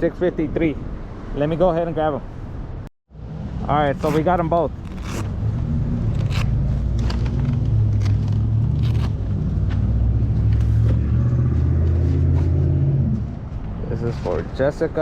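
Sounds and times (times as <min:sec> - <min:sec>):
car rumble: 0:03.2 - 0:14.0.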